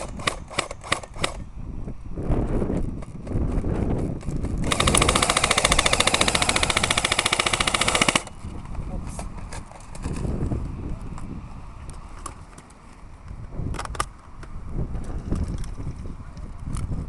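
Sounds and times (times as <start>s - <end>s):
airsoft rifle full-auto burst: 4.6s - 8.4s.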